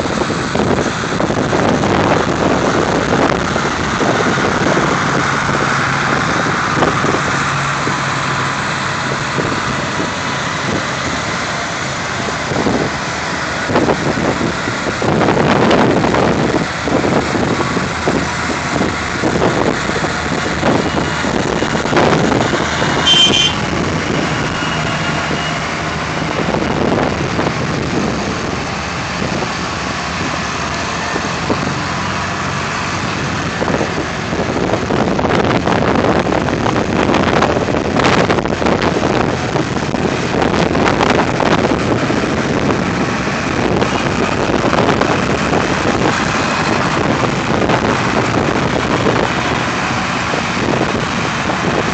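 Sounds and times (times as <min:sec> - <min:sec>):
tractor engines running: 0:00.0 - 0:51.9
brief high tone: 0:22.9 - 0:23.6.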